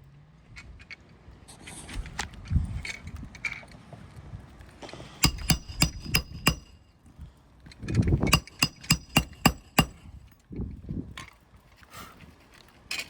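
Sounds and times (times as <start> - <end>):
hammer striking roofing nails: 5.2 - 6.8, 8.3 - 10.2.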